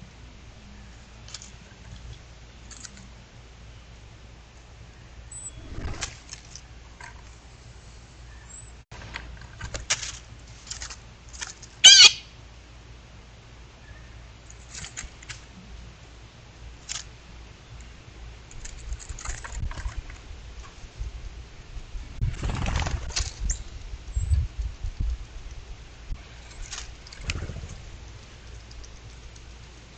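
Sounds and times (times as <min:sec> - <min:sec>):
bird wings flapping and rustling: 0:05.6 - 0:06.6, 0:18.6 - 0:20.2, 0:22.2 - 0:23.5, 0:26.4 - 0:29.2
loud bird call: 0:11.8 - 0:12.4.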